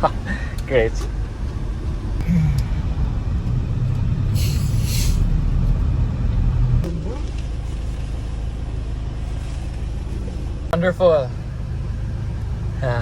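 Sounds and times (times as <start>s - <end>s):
van engine and road rumble: 0.0s - 13.0s
brief hiss: 4.4s - 5.3s.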